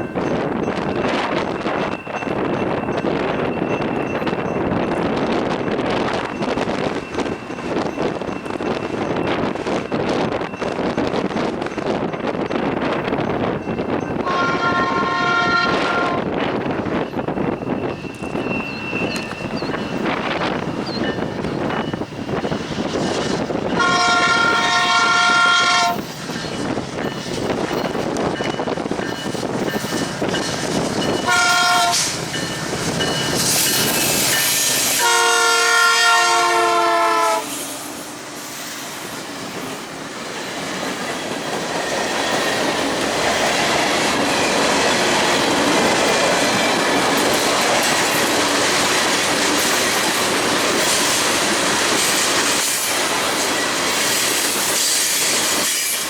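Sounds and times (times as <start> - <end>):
train horn blasts: 14.2 - 16.4, 23.7 - 26.0, 31.2 - 32.2, 34.7 - 38.0.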